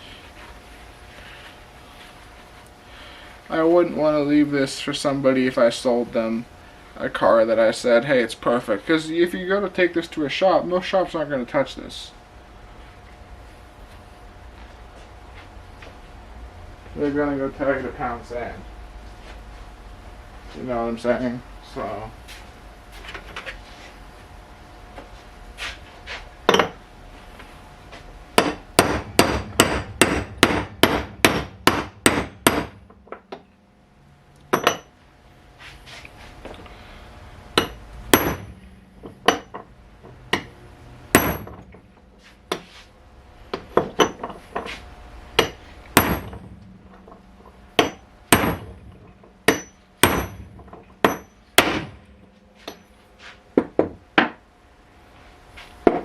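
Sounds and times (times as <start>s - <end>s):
hammer striking metal: 28.4s - 33.4s, 34.5s - 34.9s, 37.6s - 39.7s, 41.1s - 41.8s, 45.4s - 53.0s.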